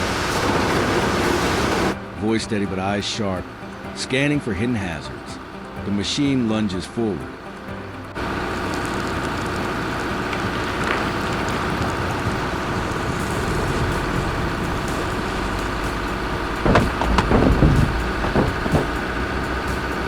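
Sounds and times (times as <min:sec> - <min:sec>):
diesel engine running: 0:08.1 - 0:20.0
sharp knocks: 0:14.8 - 0:20.0.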